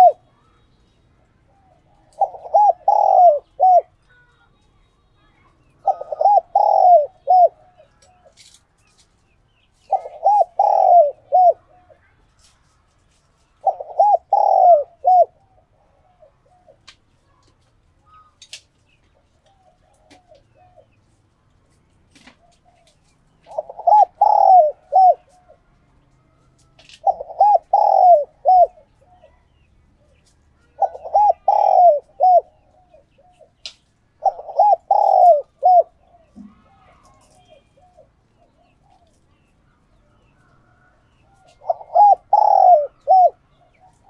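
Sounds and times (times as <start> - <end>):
dove cooing: 0.0 - 0.3, 1.5 - 4.0, 5.8 - 8.4, 9.8 - 12.0, 13.6 - 16.9, 19.4 - 21.0, 22.2 - 25.7, 26.8 - 33.6, 34.2 - 44.0.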